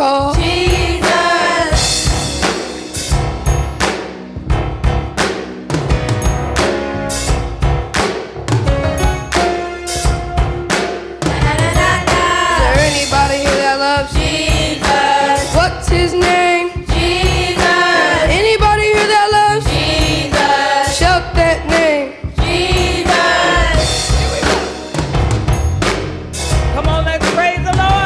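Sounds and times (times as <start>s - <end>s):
group of voices singing: 0.0s - 2.4s, 11.2s - 24.8s
band with drums and bass: 0.0s - 28.0s.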